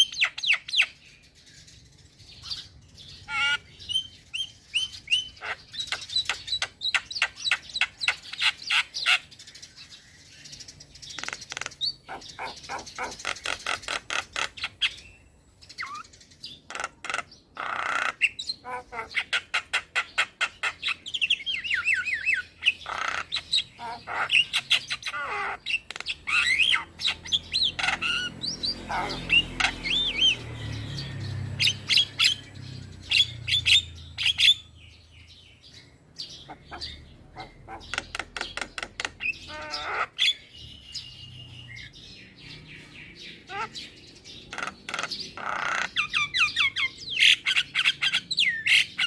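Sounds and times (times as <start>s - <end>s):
bird singing clicks and whistles: 5.8s - 8.5s, 11.1s - 12.0s, 37.9s - 39.5s.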